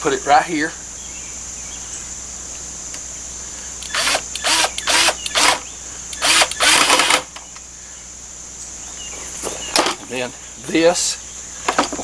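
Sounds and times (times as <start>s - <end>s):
power drill driving a screw: 3.8s - 5.6s, 6.2s - 7.3s.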